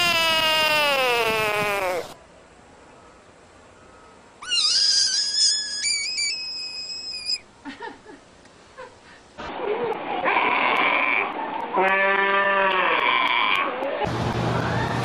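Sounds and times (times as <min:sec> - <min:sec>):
animal whistle-like call: 0:04.4 - 0:07.4.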